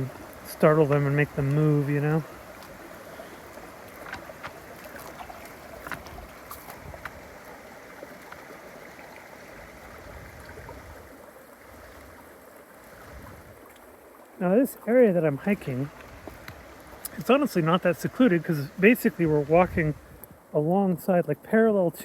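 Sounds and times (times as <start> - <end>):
creek rushing: 0.0 - 22.0.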